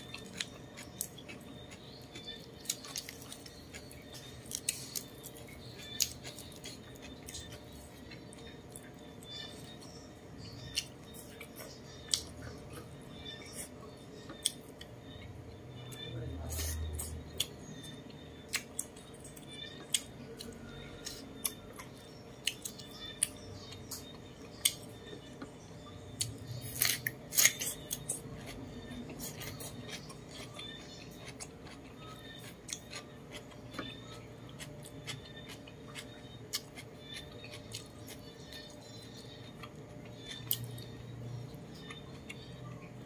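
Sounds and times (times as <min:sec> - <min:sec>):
cucumber crunching: 0:00.0 - 0:09.5, 0:26.2 - 0:42.5
chewing and mouth clicks: 0:00.0 - 0:15.3, 0:15.9 - 0:43.0.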